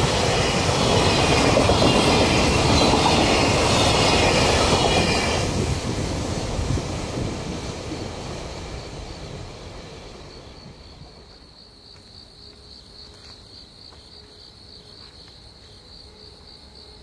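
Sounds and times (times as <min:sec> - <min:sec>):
freight train wheels clattering: 0:00.0 - 0:11.4.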